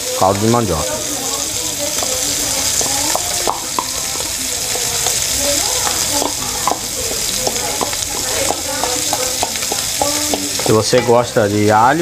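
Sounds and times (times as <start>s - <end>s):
sausage sizzling in a pot: 0.0s - 12.0s
spoon knocking on bowl and pot: 2.8s - 6.8s, 7.4s - 11.2s.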